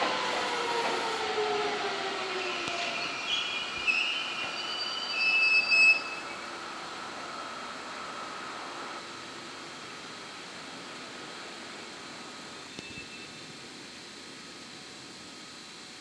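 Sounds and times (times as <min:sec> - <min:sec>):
electric train whine: 0:00.0 - 0:16.0
train wheels squealing: 0:02.3 - 0:06.4, 0:12.7 - 0:13.5.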